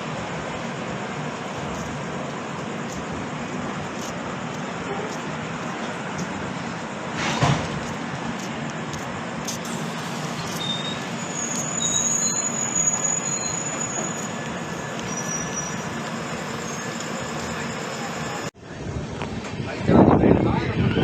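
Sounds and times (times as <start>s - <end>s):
train rumbling on rails: 0.0s - 21.0s
wheels squealing: 9.5s - 18.5s.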